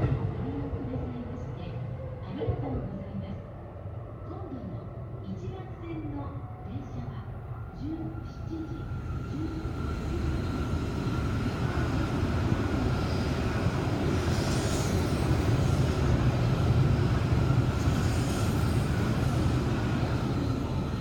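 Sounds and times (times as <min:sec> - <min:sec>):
train rumbling past: 0:00.0 - 0:03.0, 0:07.8 - 0:21.0.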